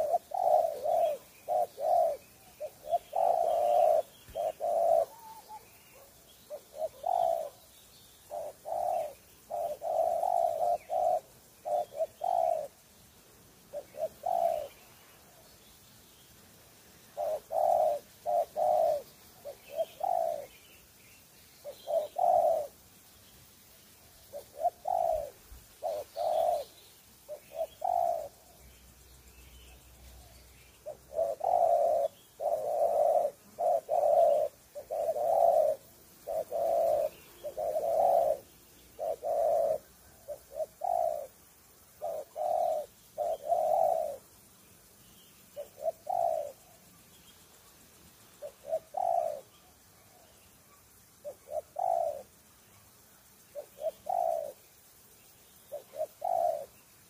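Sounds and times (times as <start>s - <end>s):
dove cooing: 0.0s - 12.8s, 13.6s - 15.4s, 17.0s - 20.7s, 21.6s - 22.8s, 24.2s - 28.7s, 29.6s - 44.4s, 45.5s - 46.9s, 48.3s - 52.4s, 53.4s - 55.0s, 55.6s - 56.8s.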